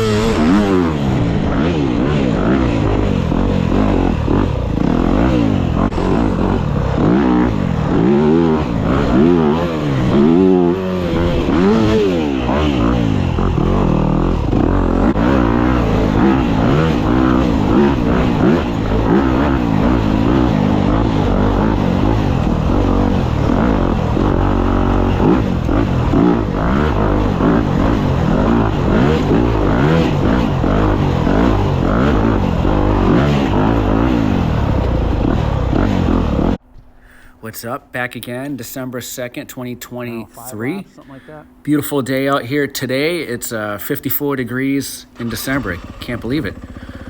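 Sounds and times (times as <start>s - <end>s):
dirt bike engine revving: 0.0s - 36.6s, 38.2s - 47.0s.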